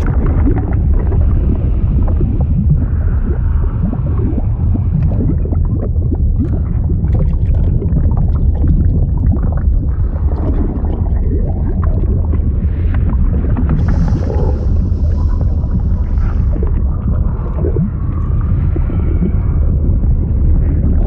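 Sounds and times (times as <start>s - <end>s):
deep liquid rumble: 0.0s - 21.0s
liquid bubbling and gurgling: 0.0s - 21.0s.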